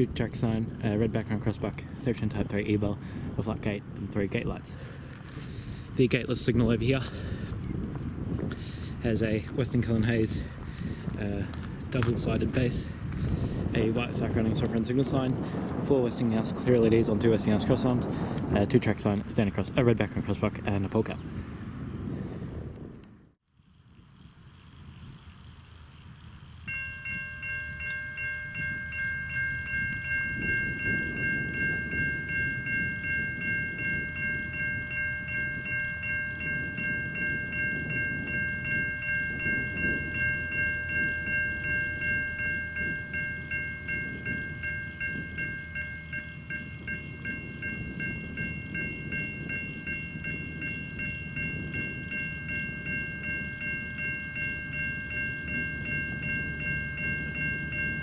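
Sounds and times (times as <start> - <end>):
crossing bells ringing: 8.9 - 18.2, 26.6 - 58.0.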